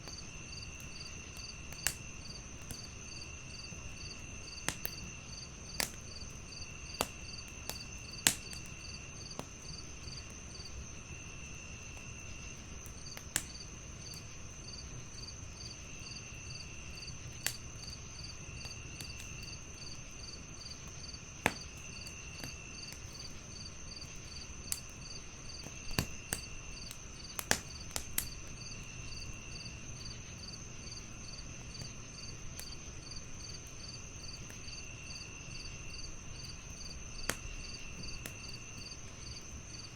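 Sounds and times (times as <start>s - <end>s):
crickets chirping: 0.0s - 39.9s
wood fire crackling: 0.0s - 39.9s
sharp pops and snaps: 0.8s - 2.9s, 4.0s - 10.4s, 12.8s - 14.2s, 17.4s - 17.9s, 18.6s - 19.9s, 20.6s - 28.8s, 36.4s - 39.4s.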